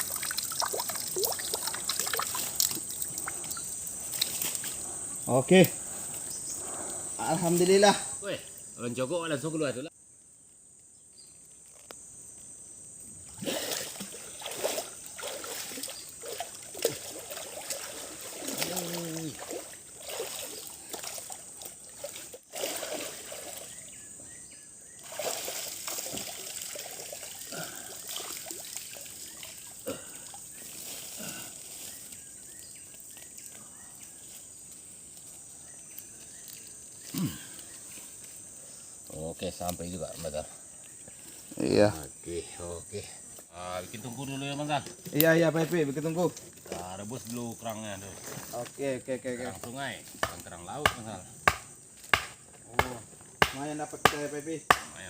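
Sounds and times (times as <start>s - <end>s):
water splashing in a shallow river: 0.0s - 4.7s, 13.3s - 23.9s, 25.0s - 31.2s
crickets chirping: 0.0s - 55.0s.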